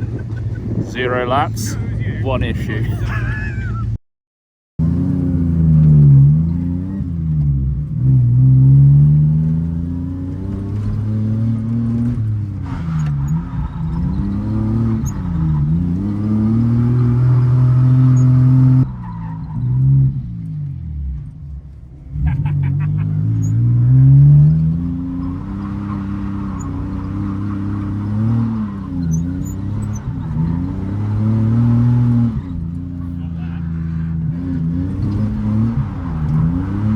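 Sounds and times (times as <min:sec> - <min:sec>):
car engine revving hard: 0:04.8 - 0:18.9, 0:22.0 - 0:36.9.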